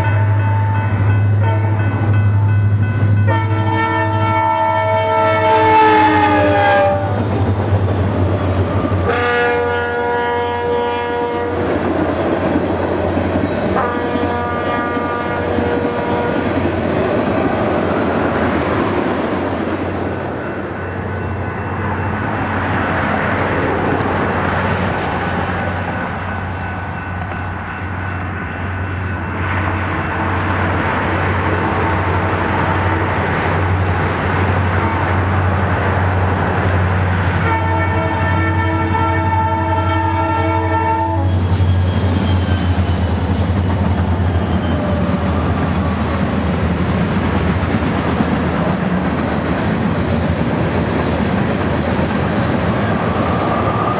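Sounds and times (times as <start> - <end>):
freight train rumbling past: 0.0 - 53.9
locomotive air horn blasts: 3.3 - 7.3, 9.0 - 11.7, 13.8 - 16.5, 37.4 - 41.4.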